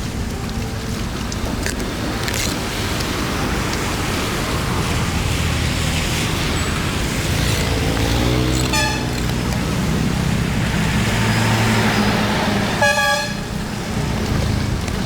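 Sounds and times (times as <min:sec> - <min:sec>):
vehicle engine humming: 0:00.0 - 0:15.0
vehicle horn tooting: 0:08.6 - 0:09.3, 0:12.8 - 0:13.6.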